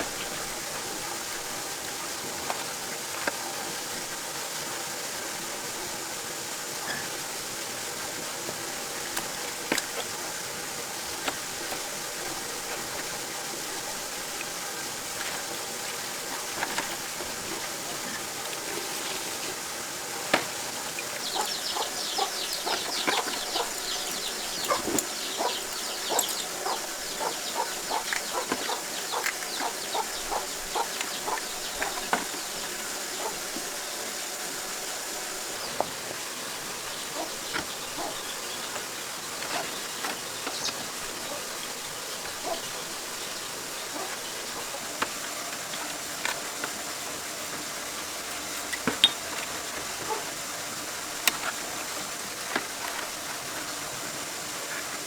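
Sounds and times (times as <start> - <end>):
background hiss: 0.0 - 55.0
birds chirping: 8.8 - 52.2.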